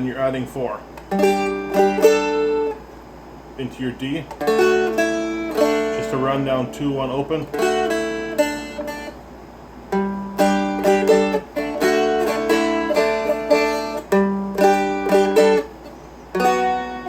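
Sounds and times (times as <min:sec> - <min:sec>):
strumstick picked notes and chords: 0:00.1 - 0:02.9, 0:04.0 - 0:09.2, 0:09.9 - 0:17.0.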